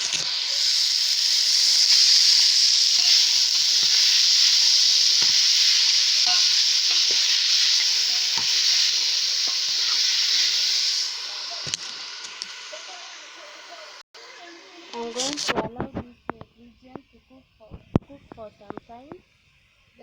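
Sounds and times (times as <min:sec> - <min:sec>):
vegetables sizzling in oil: 0:00.0 - 0:15.8.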